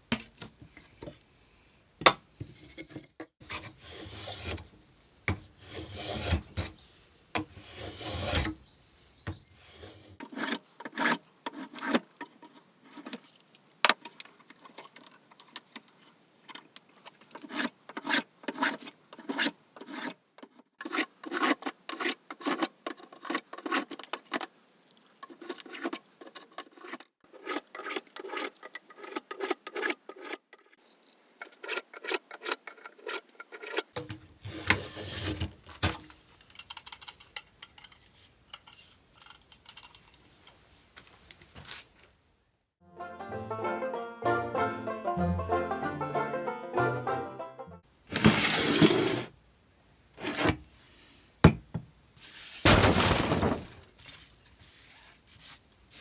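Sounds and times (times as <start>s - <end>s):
filing or sanding metal strokes: 10.2s - 33.9s.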